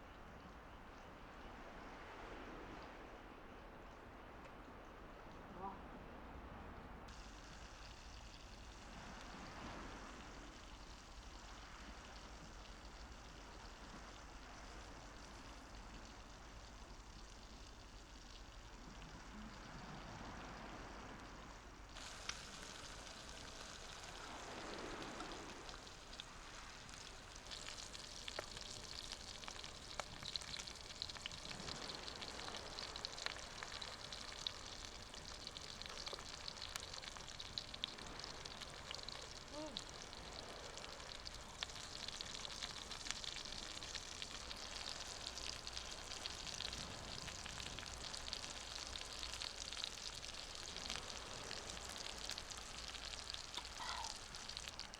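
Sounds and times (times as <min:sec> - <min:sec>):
small crackling pops: 0:21.9 - 0:54.9
food sizzling in a pan: 0:22.0 - 0:54.9.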